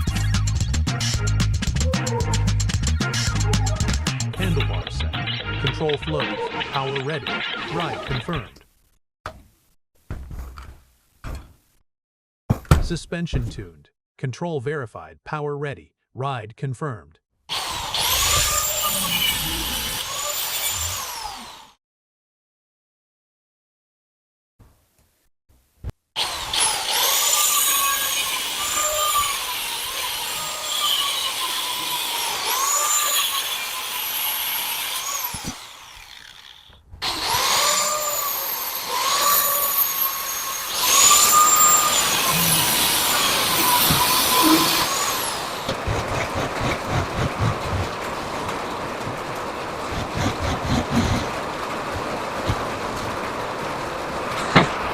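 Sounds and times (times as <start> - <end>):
power tool whining: 17.5 - 21.8, 26.2 - 48.0, 49.9 - 52.7.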